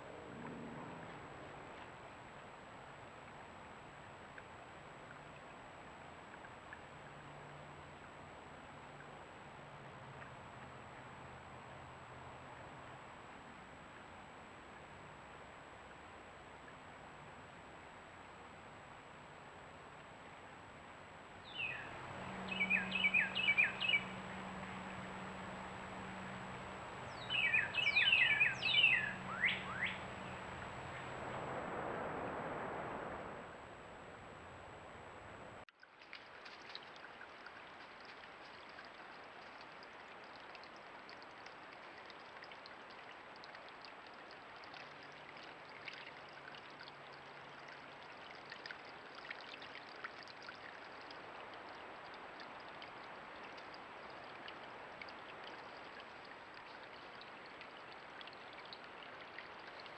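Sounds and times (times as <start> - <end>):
creek water flowing: 21.4 - 34.7, 35.7 - 59.9
bird calling sweeping notes: 21.6 - 31.6.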